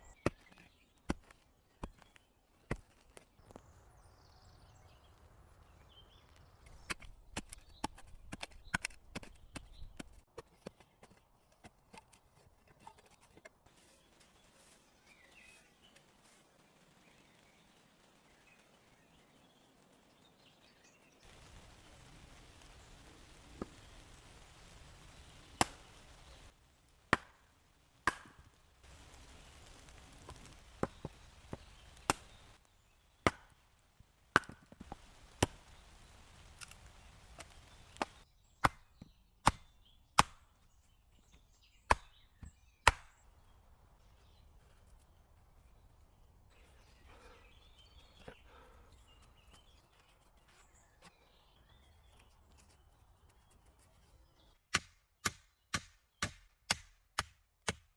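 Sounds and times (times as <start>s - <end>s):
wood chopping strikes: 27.1s - 28.4s, 30.8s - 32.2s, 33.2s - 33.6s, 34.3s - 35.6s, 37.4s - 40.5s, 41.9s - 43.2s, 54.7s - 57.9s.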